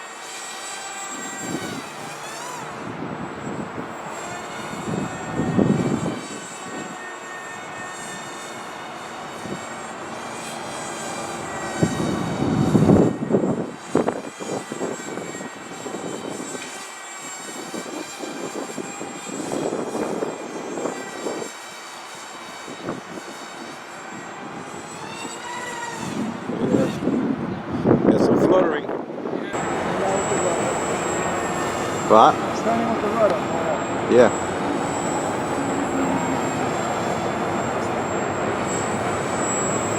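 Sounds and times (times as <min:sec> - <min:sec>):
high-pitched electric motor whine: 0:00.0 - 0:39.9
wind buffeting microphone: 0:01.2 - 0:07.0, 0:09.2 - 0:16.6, 0:17.4 - 0:21.5, 0:22.7 - 0:23.4, 0:25.9 - 0:39.9.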